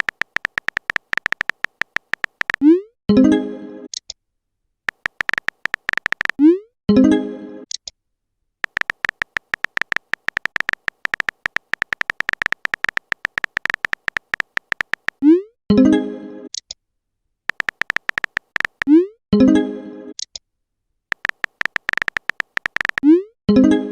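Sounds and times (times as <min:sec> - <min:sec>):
phone keyboard typing clicks: 0:00.0 - 0:02.7, 0:04.9 - 0:06.4, 0:08.6 - 0:15.3, 0:17.5 - 0:19.0, 0:21.1 - 0:23.1.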